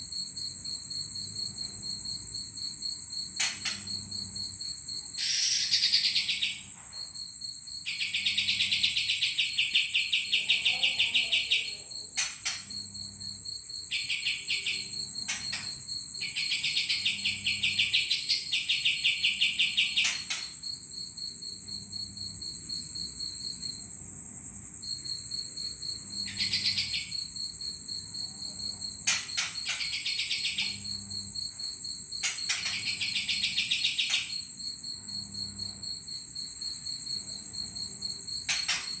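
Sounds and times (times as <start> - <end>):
insect trill: 0.0 - 39.0
songbird chattering: 5.2 - 6.6, 16.2 - 20.3, 26.3 - 27.1, 29.4 - 30.8.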